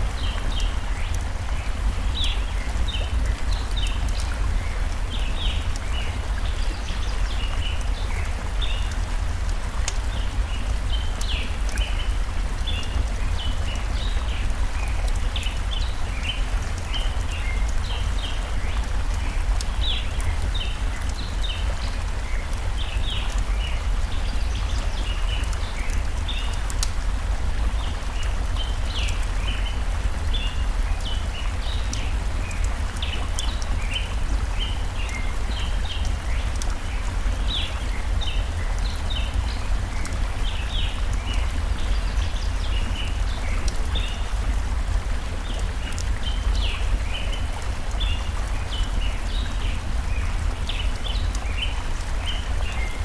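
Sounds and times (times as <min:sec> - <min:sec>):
stream water flowing: 0:00.0 - 0:53.0
wood fire crackling: 0:25.4 - 0:27.0.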